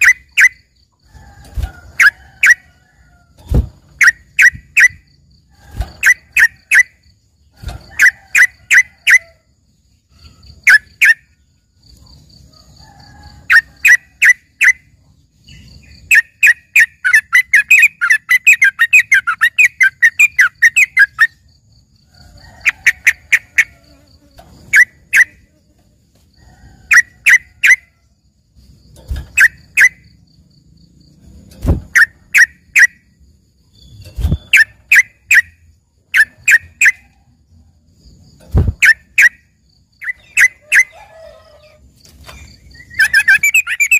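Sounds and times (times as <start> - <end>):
faint high pulsing chirp: 0.0 - 2.8, 3.4 - 43.9.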